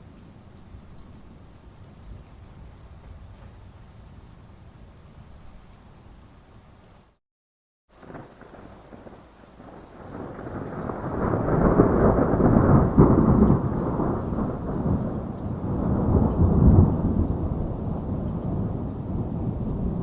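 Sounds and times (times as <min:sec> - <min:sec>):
steady rain: 0:00.0 - 0:07.2, 0:07.9 - 0:20.0
rolling thunder: 0:08.0 - 0:20.0.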